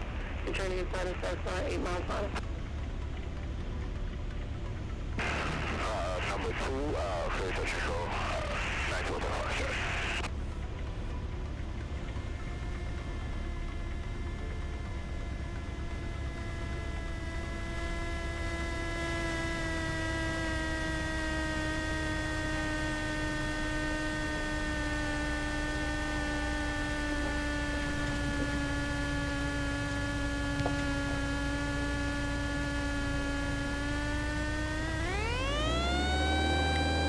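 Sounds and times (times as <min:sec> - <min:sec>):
small plane engine whine: 0:00.0 - 0:37.0.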